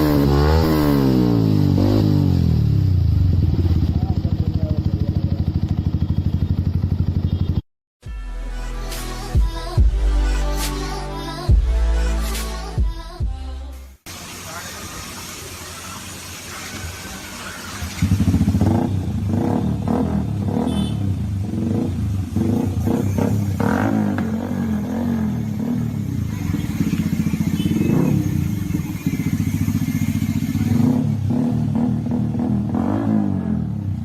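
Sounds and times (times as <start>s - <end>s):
motorcycle engine idling and revving: 0.0s - 7.6s, 17.2s - 34.0s.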